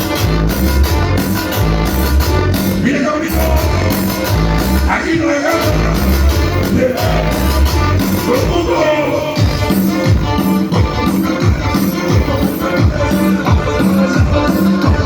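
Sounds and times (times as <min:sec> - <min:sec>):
cumbia music: 0:00.0 - 0:15.0
person singing: 0:02.7 - 0:09.8, 0:10.7 - 0:15.0.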